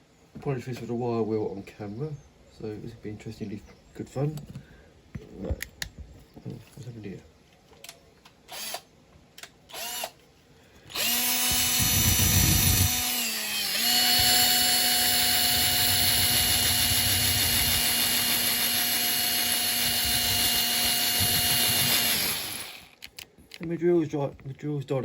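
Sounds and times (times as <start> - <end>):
electric drill with wire wheel: 8.5 - 8.9, 9.7 - 10.2, 10.9 - 23.1.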